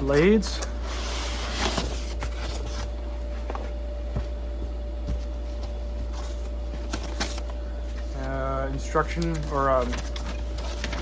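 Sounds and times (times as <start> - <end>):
packaging rustling: 5.2 - 11.0.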